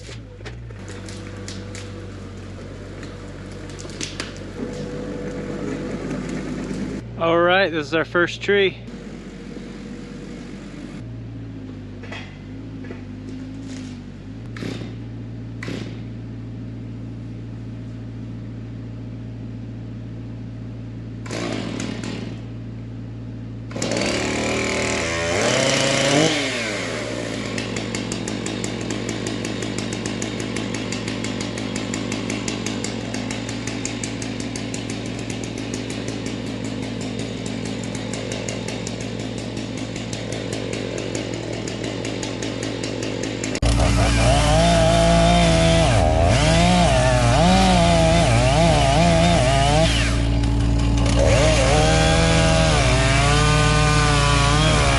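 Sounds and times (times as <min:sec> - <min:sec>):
low engine hum: 0:00.0 - 0:54.9
chainsaw cutting wood: 0:00.8 - 0:07.0, 0:13.0 - 0:16.2, 0:21.2 - 0:22.6, 0:23.7 - 0:54.9.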